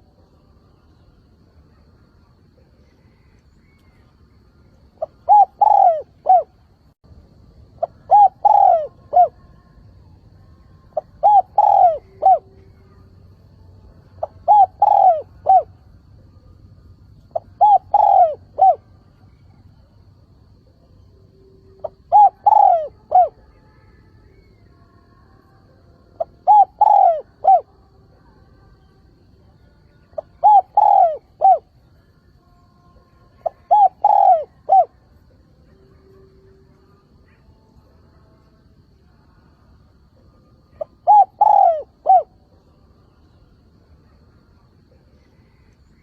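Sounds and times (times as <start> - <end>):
dove cooing: 5.0 - 6.6, 7.8 - 9.5, 10.9 - 13.1, 14.2 - 15.8, 17.3 - 19.6, 21.7 - 23.6, 26.2 - 27.7, 30.2 - 31.7, 33.3 - 35.0, 40.2 - 42.5.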